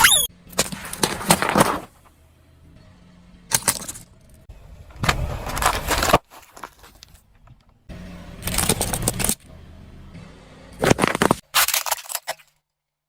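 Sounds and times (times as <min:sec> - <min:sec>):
tyre crushing objects: 0:00.6 - 0:02.1, 0:04.9 - 0:07.4, 0:10.8 - 0:12.2.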